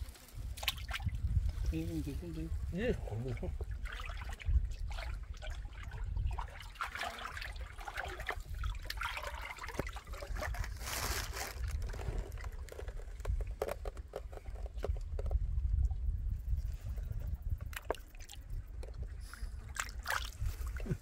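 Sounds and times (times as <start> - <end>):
river water lapping and trickling: 0.0 - 21.0.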